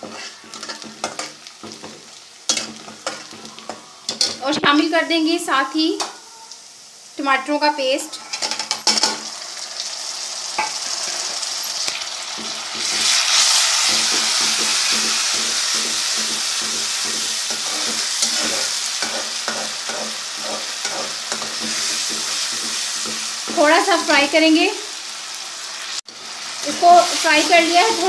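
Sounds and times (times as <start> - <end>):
spoon stirring and scraping pan: 0.0 - 4.8, 8.1 - 9.3, 12.3 - 24.0
food sizzling in a pan: 0.0 - 28.0.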